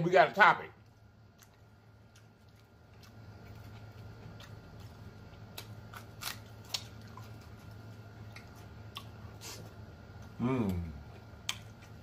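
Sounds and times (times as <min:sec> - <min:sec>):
steady low hum: 0:00.0 - 0:12.0
crisp crunching while eating: 0:01.0 - 0:09.3.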